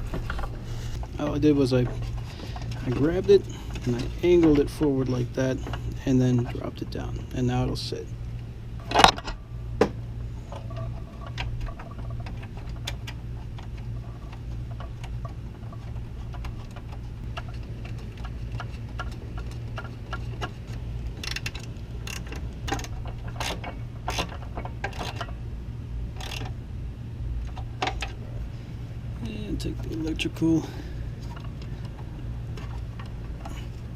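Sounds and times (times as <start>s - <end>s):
steady low hum: 0.0s - 33.9s
ratchet wrench clicking: 18.5s - 25.2s, 26.2s - 26.6s.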